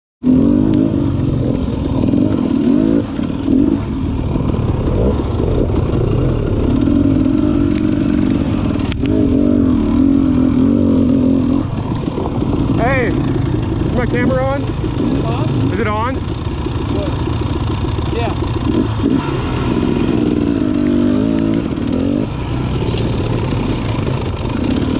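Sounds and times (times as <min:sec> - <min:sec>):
dirt bike engines idling: 0:00.8 - 0:24.9.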